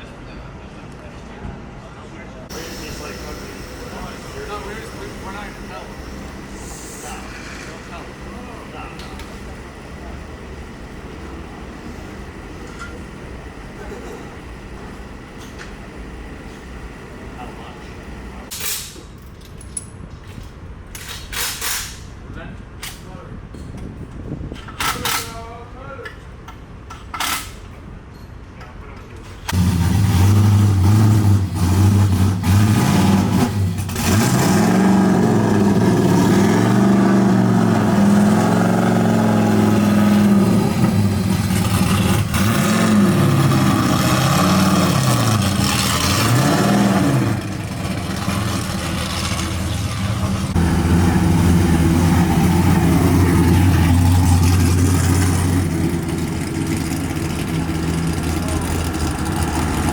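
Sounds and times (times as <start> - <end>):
drift car engine revving: 29.5 - 59.9.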